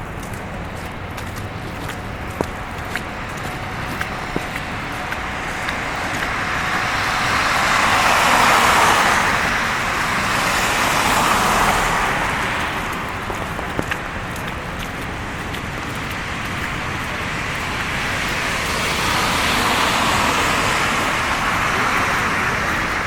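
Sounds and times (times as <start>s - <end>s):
tyres hissing through slush: 3.1s - 13.1s, 16.2s - 23.0s.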